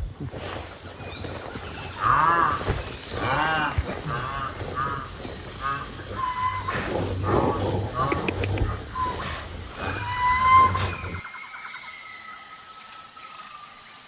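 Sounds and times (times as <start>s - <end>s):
rhinoceros squealing: 1.0s - 11.2s.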